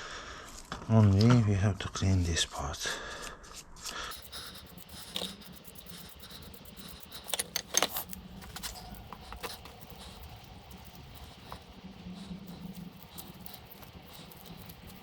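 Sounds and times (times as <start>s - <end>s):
metal tools clinking: 7.2s - 11.6s.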